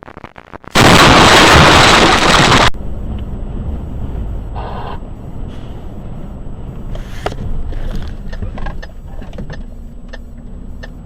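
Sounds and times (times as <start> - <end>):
road noise: 0.8 - 11.0
vehicle engine rumble: 2.7 - 11.0.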